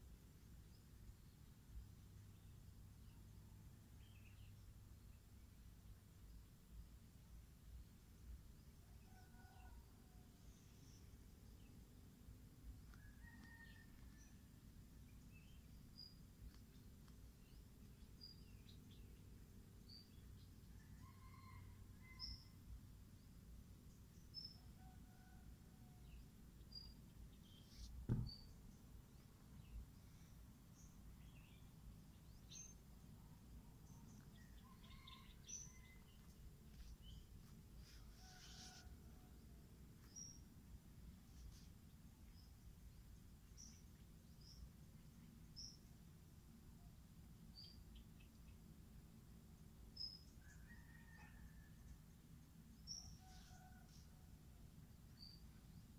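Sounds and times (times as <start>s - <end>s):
faint bird chirps: 12.9s - 22.6s, 23.9s - 39.4s
short low thump: 28.0s - 28.5s.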